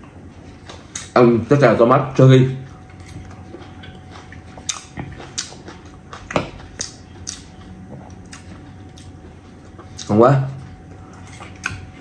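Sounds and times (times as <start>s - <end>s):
person chewing with mouth smacks: 2.7s - 12.0s.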